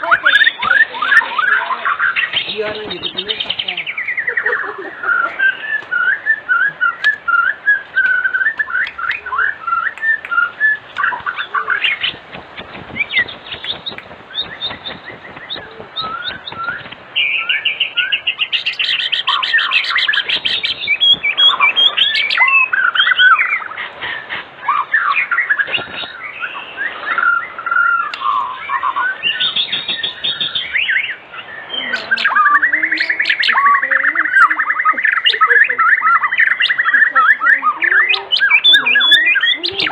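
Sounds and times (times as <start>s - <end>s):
fast bird trill: 0.0s - 39.9s
songbird singing whistled phrases: 0.0s - 39.9s.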